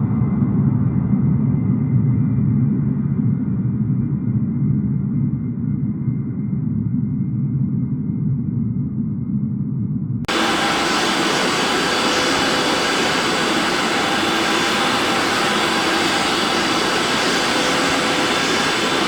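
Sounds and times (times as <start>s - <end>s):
jet airliner engines roaring: 10.3s - 19.0s.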